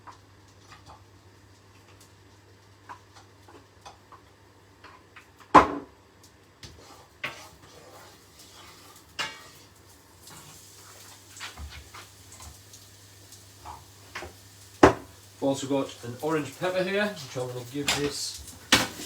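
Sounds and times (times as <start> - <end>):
pans and utensils clattering: 6.8 - 12.6, 15.9 - 19.0.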